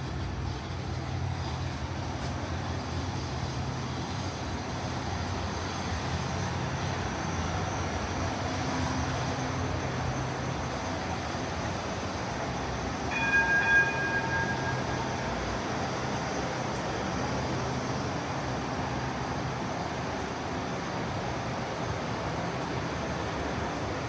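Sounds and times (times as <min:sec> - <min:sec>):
tram rumbling and humming: 0:00.0 - 0:24.0
pitched warning tone: 0:13.1 - 0:16.6.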